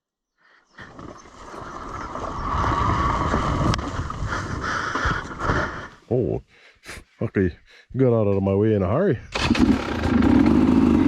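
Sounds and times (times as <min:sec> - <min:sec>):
dirt bike engine riding: 0:00.7 - 0:05.9, 0:09.3 - 0:11.0.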